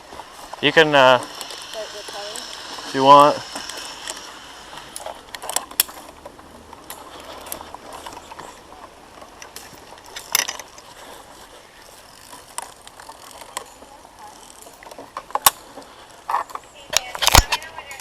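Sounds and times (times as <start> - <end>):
metal clicks of climbing gear: 0.5 - 18.0.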